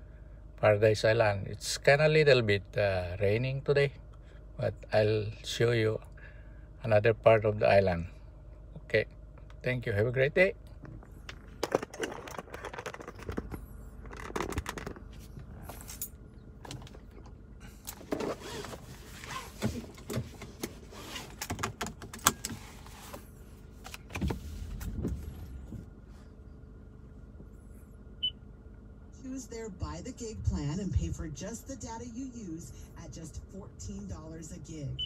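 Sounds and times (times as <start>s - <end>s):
steady low rumble: 0.0s - 18.1s, 23.2s - 35.0s
objects being handled in a car: 10.6s - 28.1s.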